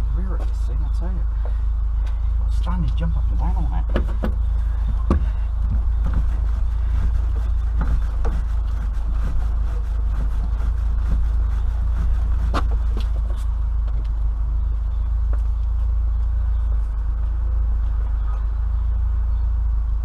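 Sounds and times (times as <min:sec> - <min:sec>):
low rumble: 0:00.0 - 0:20.0
car body knocks and creaks: 0:03.8 - 0:14.2.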